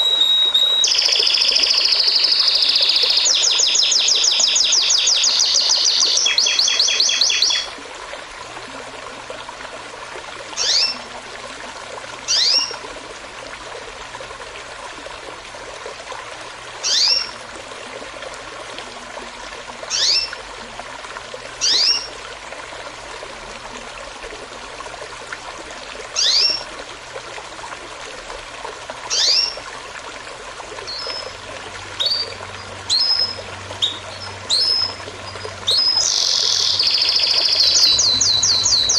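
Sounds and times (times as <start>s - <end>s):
downward sliding whistle: 0.0s - 3.4s
songbirds calling: 0.0s - 7.8s, 10.6s - 11.1s, 12.2s - 12.8s, 16.8s - 17.4s, 19.9s - 20.5s, 21.6s - 22.2s, 26.2s - 26.7s, 29.1s - 29.6s, 30.8s - 38.9s
small stream running: 0.0s - 38.9s.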